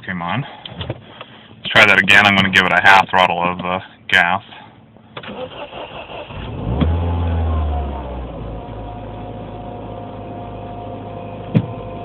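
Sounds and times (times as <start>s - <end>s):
car engine starting and idling: 5.1s - 12.0s.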